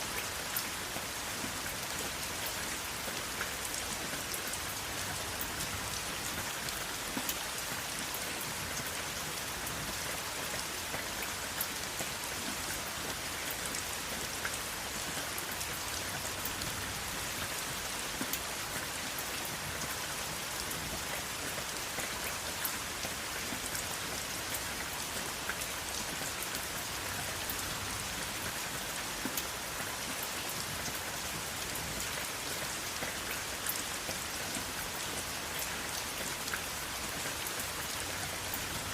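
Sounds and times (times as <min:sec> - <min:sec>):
rain pattering on a surface: 0:00.0 - 0:38.9.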